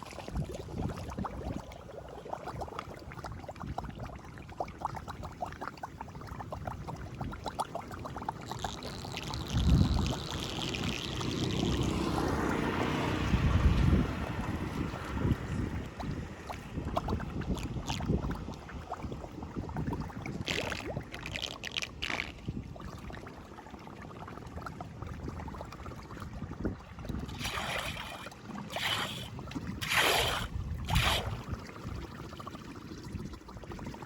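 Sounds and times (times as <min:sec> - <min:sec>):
wind buffeting microphone: 0:00.0 - 0:01.7, 0:09.3 - 0:21.2, 0:26.2 - 0:32.3
water splashes: 0:00.0 - 0:34.0
flood water rushing: 0:27.3 - 0:31.5.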